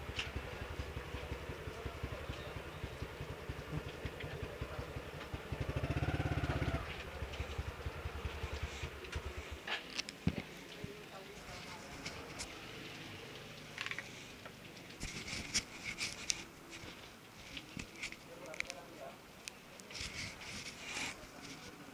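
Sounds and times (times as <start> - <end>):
motorcycle engine idling: 0.0 - 9.9
motorcycle engine revving: 0.0 - 9.9.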